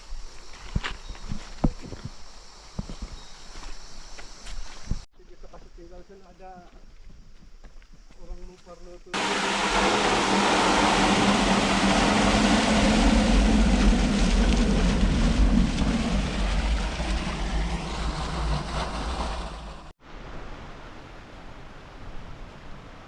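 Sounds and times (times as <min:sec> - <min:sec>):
deep rumble: 0:09.2 - 0:20.0
rushing water: 0:09.2 - 0:21.4.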